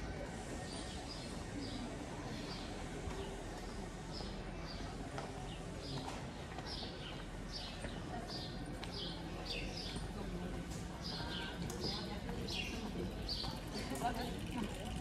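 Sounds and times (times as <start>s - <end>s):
street noise: 0.0s - 15.0s.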